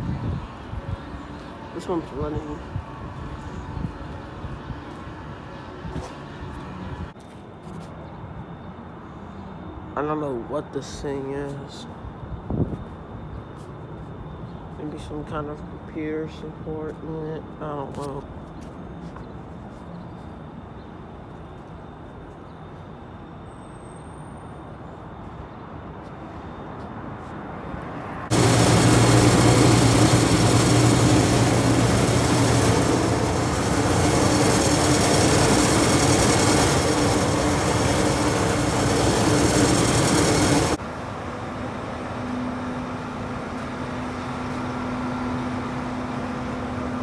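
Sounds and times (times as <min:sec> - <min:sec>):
loud machinery noise: 0:00.0 - 0:07.2, 0:28.3 - 0:47.0.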